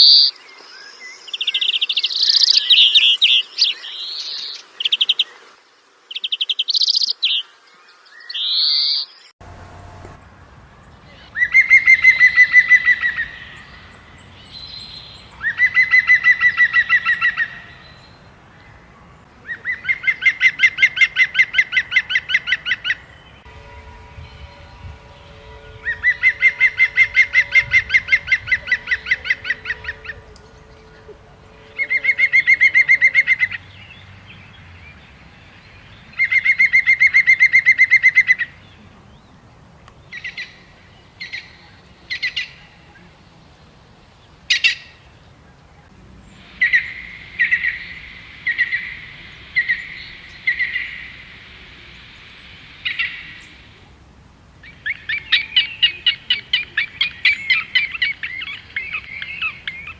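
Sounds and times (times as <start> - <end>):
bird call notes: 0.0 - 5.4, 8.1 - 34.1, 46.3 - 53.9, 54.6 - 59.9
bird singing fast trills: 0.0 - 5.4, 6.1 - 39.4.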